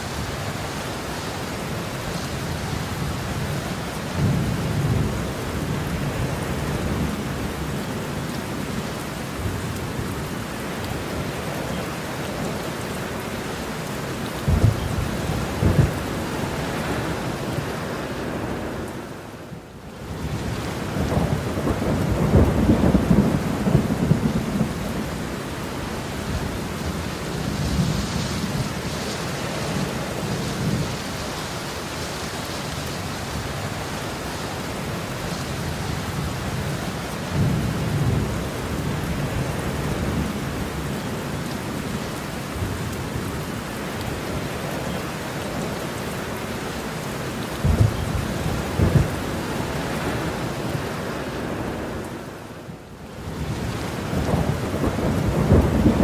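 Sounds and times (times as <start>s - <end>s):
heavy rain falling: 0.0s - 56.0s
thunder claps: 14.4s - 17.0s, 47.6s - 50.3s, 54.1s - 56.0s
rolling thunder rumble: 14.4s - 17.7s, 20.2s - 29.0s, 47.6s - 52.0s, 53.3s - 56.0s.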